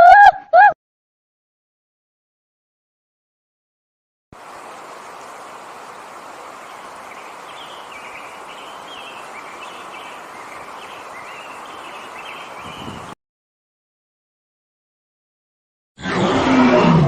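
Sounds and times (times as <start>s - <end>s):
small birds chirping: 4.4s - 13.2s
steady outdoor hiss: 4.4s - 13.2s.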